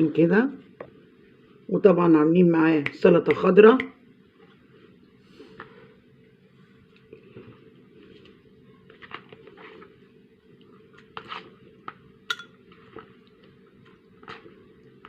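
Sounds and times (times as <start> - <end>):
room hum: 0.0 - 15.0
cutlery and dishes clinking: 12.3 - 12.6.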